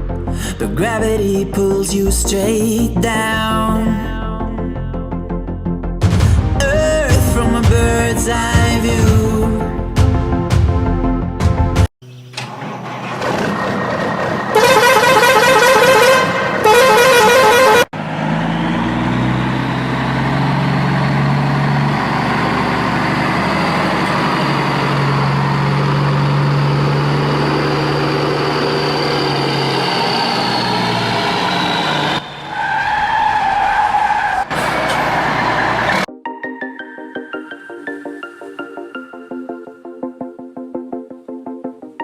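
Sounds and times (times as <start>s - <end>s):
vehicle engine running: 12.0s - 32.4s, 34.4s - 36.1s
vehicle horn blasts: 14.5s - 17.9s.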